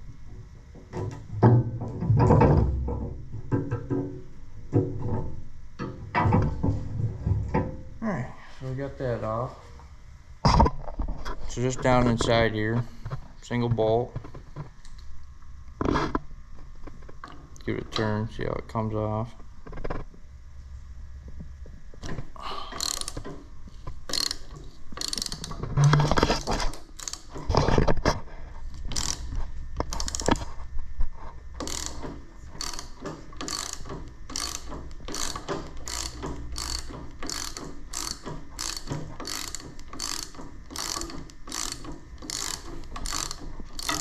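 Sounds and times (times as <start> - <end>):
socket ratchet clicking: 22.7 - 23.4, 24.1 - 25.6, 26.7 - 27.4, 28.9 - 30.4, 31.6 - 44.0.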